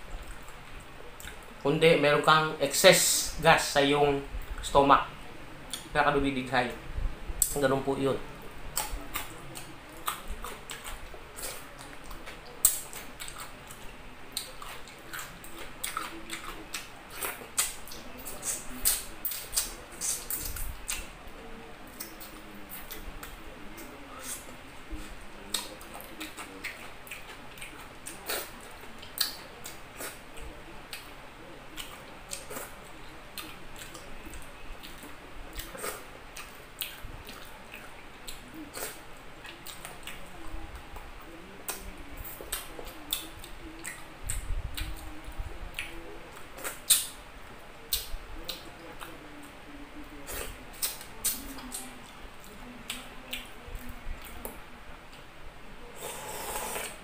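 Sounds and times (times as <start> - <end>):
chewing with wet mouth smacks: 0.2 - 1.6, 8.7 - 31.1, 31.7 - 40.8, 41.7 - 47.2, 50.3 - 55.2.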